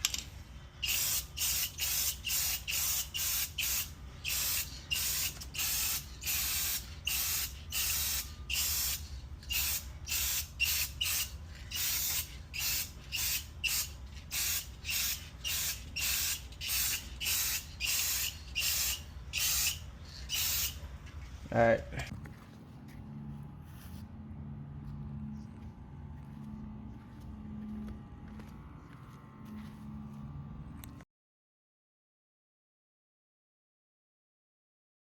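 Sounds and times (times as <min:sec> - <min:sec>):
spray can hissing: 0:00.8 - 0:20.8.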